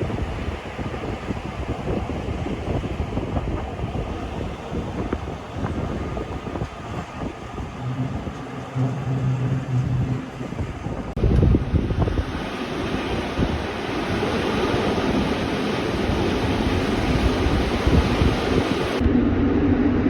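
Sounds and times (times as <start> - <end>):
train running noise: 0.0 - 19.3
loud rushing noise: 1.6 - 20.0
low hum: 3.7 - 20.0
wheel and carriage rattles: 4.5 - 11.2.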